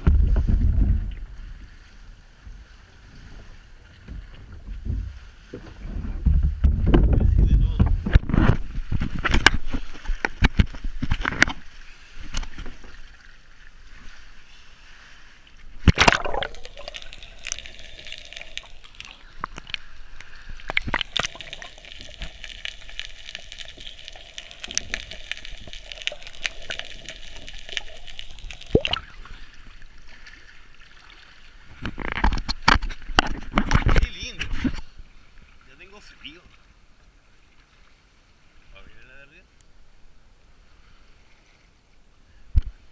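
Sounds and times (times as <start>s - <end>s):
sea water sloshing and gurgling: 0.0s - 38.8s
loud splash: 15.8s - 18.0s, 28.5s - 29.5s.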